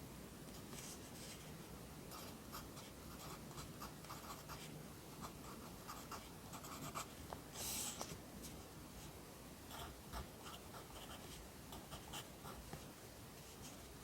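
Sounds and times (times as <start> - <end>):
pencil scratching on paper: 2.1 - 7.1, 9.7 - 12.7.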